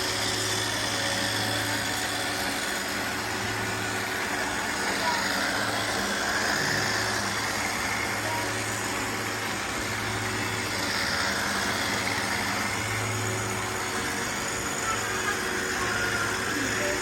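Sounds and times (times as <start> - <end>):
robot vacuums humming: 0.0 - 17.0
suction and brushes whirring: 0.0 - 17.0.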